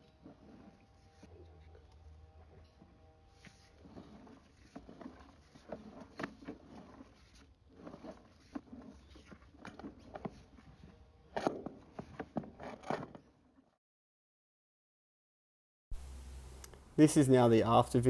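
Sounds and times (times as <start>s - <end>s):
scraping or rubbing: 0.0s - 13.5s.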